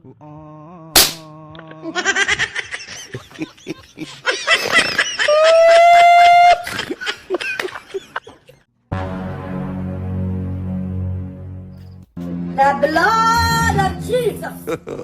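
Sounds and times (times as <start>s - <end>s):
people laughing: 1.3s - 8.7s, 14.6s - 15.0s.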